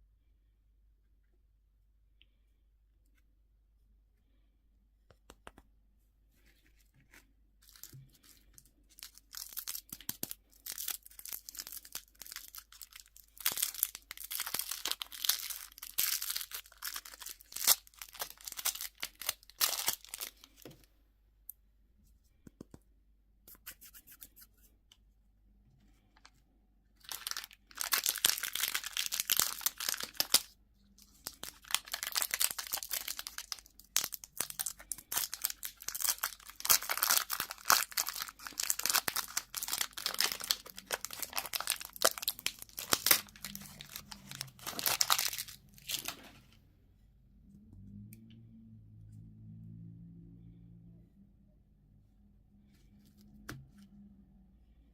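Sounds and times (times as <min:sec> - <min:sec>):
candy wrapper crinkling: 0:07.6 - 0:20.7, 0:27.0 - 0:46.2.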